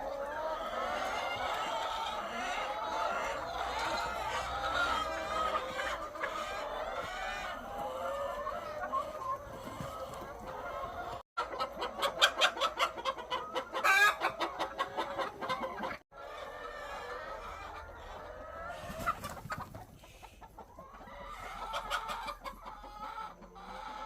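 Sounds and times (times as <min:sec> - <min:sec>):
hens clucking and cackling: 0:00.0 - 0:24.0.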